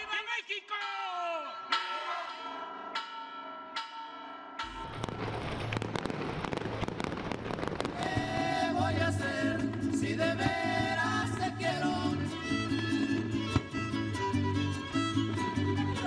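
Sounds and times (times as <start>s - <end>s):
fireworks crackling and popping: 4.7s - 16.0s
music with violins and voices: 8.6s - 16.0s.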